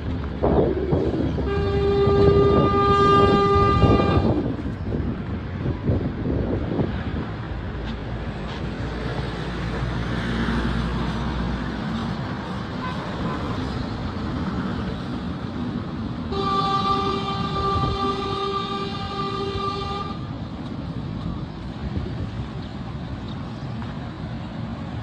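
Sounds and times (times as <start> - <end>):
vehicles passing: 0.0 - 25.0
vehicle horn blast: 1.5 - 4.4, 16.3 - 20.2.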